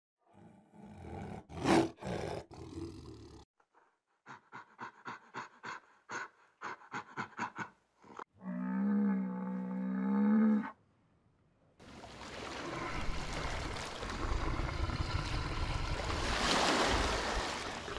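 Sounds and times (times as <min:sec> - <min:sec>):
tiger growling and roaring: 0:00.2 - 0:03.4.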